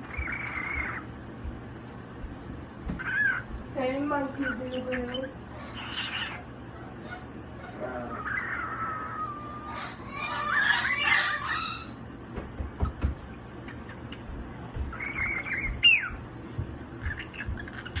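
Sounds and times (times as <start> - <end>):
cockatoo squawk: 0.0 - 1.1, 3.0 - 3.5, 4.4 - 12.1, 14.9 - 16.2, 17.0 - 18.0
cockatoo chattering calls: 0.0 - 1.3, 3.0 - 3.6, 4.3 - 7.2, 8.1 - 12.2, 14.9 - 16.2, 17.0 - 18.0.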